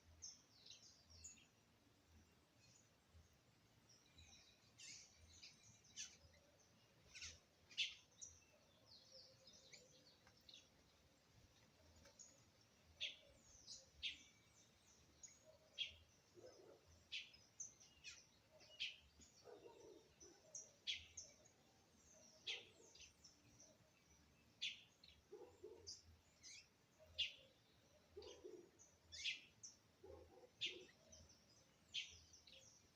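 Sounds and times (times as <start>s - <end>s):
woodpecker calling: 7.1s - 8.0s.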